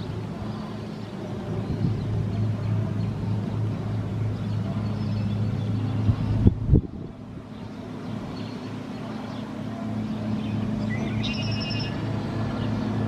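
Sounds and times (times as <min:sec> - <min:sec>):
low engine hum: 0:00.0 - 0:13.0
wind noise on microphone: 0:01.5 - 0:02.3, 0:05.9 - 0:07.7.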